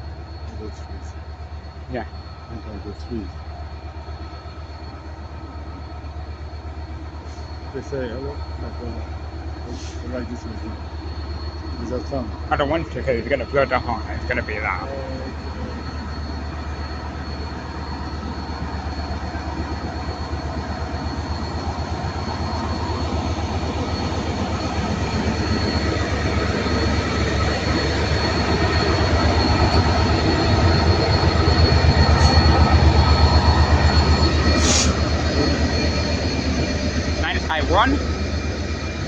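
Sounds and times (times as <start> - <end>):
diesel locomotive engine throbbing: 0.0 - 39.0
short high screech: 28.2 - 36.3.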